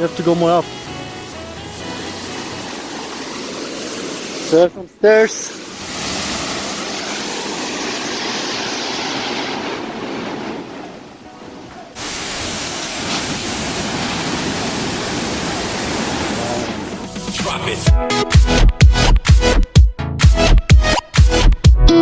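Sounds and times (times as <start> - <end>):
waterfall roaring: 0.0 - 17.1.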